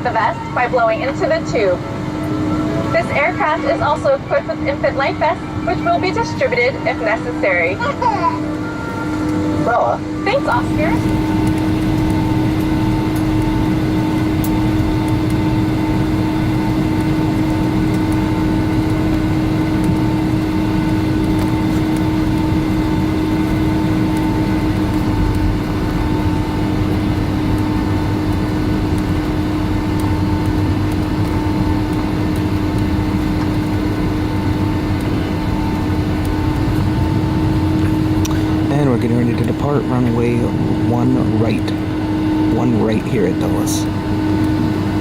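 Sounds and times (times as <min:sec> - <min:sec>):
jet engines idling in cabin: 0:00.0 - 0:45.0.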